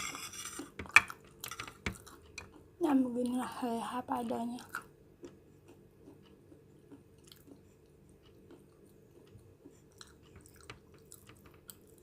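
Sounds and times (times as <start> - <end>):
low steady hum: 0.0 - 12.0
chewing noodles: 0.6 - 2.7, 4.6 - 12.0.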